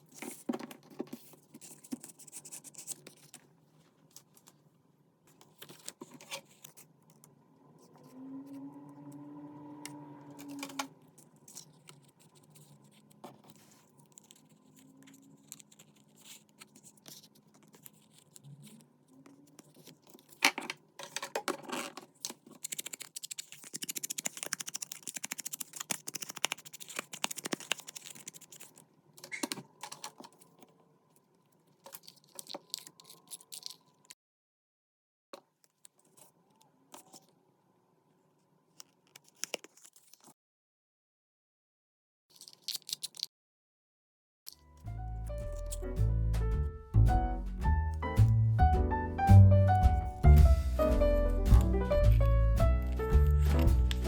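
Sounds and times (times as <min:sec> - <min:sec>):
paper being handled: 0:00.0 - 0:04.6, 0:05.3 - 0:07.2, 0:10.4 - 0:20.5, 0:21.6 - 0:30.6, 0:44.8 - 0:48.4, 0:49.3 - 0:54.0
taps and clicks: 0:45.4 - 0:54.0.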